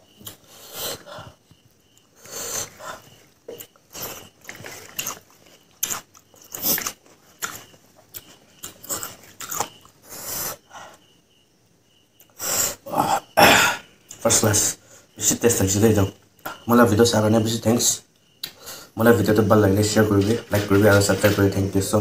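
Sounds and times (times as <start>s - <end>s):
man chewing food: 0.0s - 11.0s
sniffs and sharp breaths: 0.1s - 9.4s, 10.0s - 11.2s, 12.2s - 12.9s, 18.4s - 19.0s.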